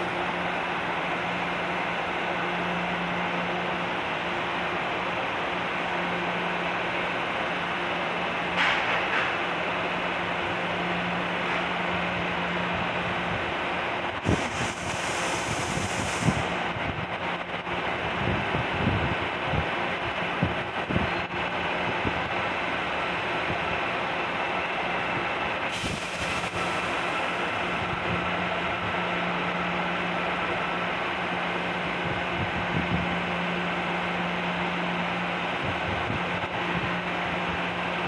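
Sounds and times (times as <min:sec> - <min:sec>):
train mechanical hum and rumble: 0:00.0 - 0:38.0
air hiss: 0:14.2 - 0:17.0, 0:25.7 - 0:28.0.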